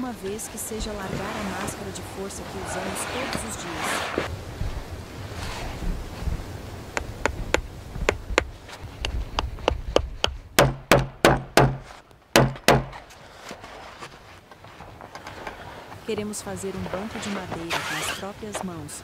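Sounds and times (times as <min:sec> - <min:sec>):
hand tool knocking on wood: 0:07.0 - 0:13.0.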